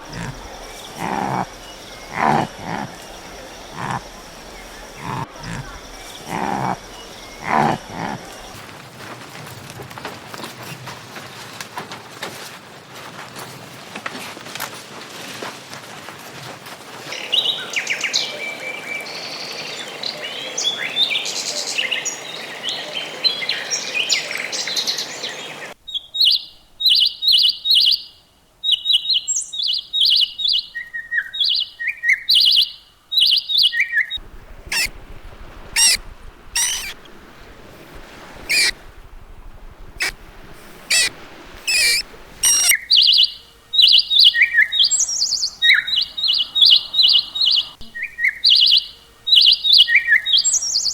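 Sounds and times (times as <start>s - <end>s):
birds chirping and calling: 0.0s - 8.6s, 32.3s - 34.9s, 35.8s - 36.0s, 36.6s - 37.0s, 37.9s - 38.8s, 40.0s - 50.9s
background hiss: 0.0s - 8.9s, 34.2s - 50.9s.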